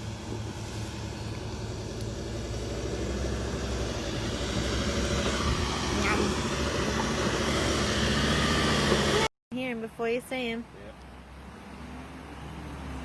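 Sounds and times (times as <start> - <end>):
engine running under load: 0.0 - 9.3.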